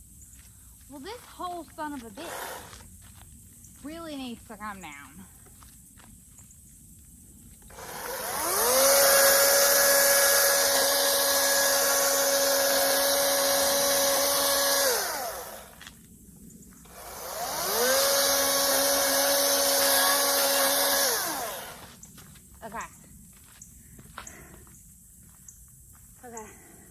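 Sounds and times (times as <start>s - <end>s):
chainsaw high whine: 2.1s - 2.8s, 7.7s - 15.8s, 16.8s - 22.0s.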